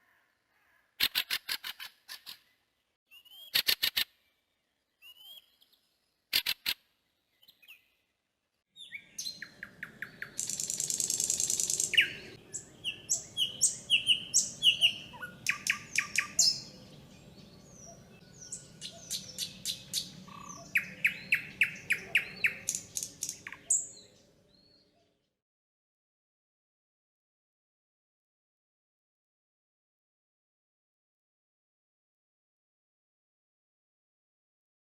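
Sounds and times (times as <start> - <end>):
birds chirping and singing: 8.8 - 25.2.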